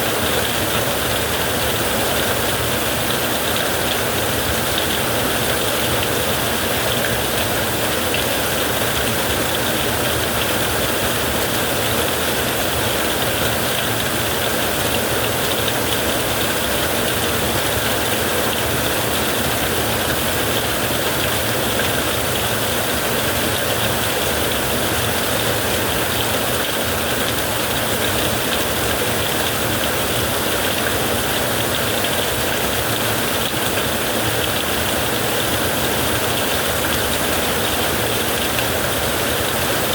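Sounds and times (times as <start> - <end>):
heavy rain on a tent: 0.0 - 39.9.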